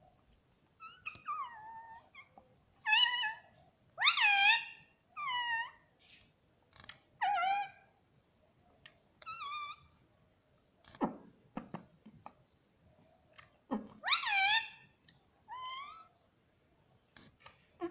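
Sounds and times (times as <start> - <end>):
parrot calls: 0.8 - 5.8, 9.3 - 9.9, 13.7 - 16.1.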